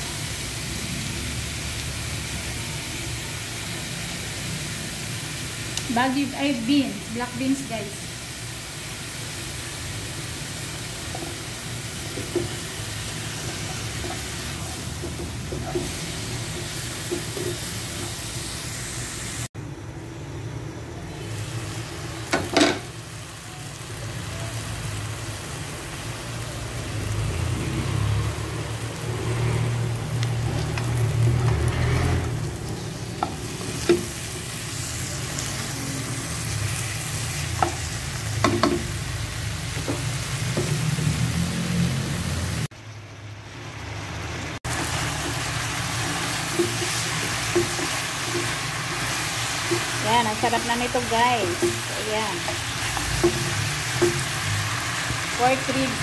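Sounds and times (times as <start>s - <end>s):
ribs sizzling in a wok: 0.0s - 56.0s
spatula knocking against pan: 38.4s - 38.9s.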